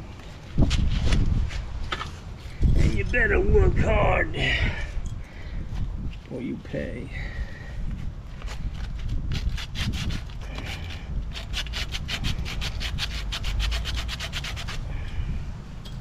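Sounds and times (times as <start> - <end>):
copper pipe being scrubbed: 8.4 - 15.0.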